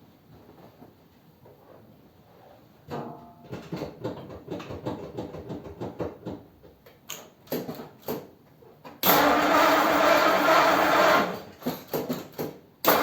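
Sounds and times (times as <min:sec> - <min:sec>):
car starter cranking engine: 0:09.0 - 0:11.4.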